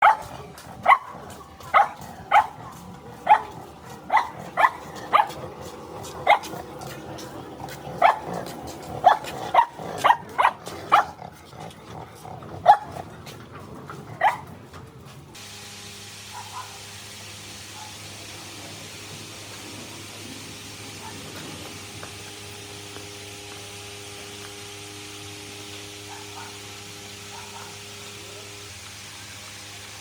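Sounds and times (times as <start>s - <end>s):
dog barking: 0.0s - 5.5s, 6.1s - 6.9s, 8.0s - 11.2s, 12.6s - 13.0s, 14.2s - 14.5s, 16.3s - 16.8s, 17.8s - 18.0s, 21.0s - 21.3s, 26.0s - 26.7s, 27.3s - 27.8s.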